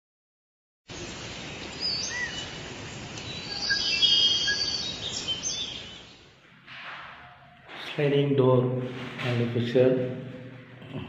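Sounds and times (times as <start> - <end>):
steady hiss: 0.9 - 5.2
birds chirping and whistling: 1.4 - 2.6, 3.2 - 7.8, 10.2 - 11.0.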